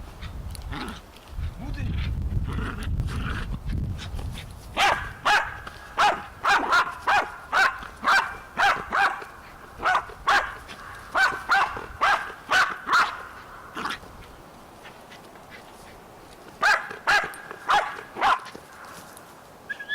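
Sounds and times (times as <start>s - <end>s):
dog barking: 4.8s - 13.3s, 16.6s - 18.6s.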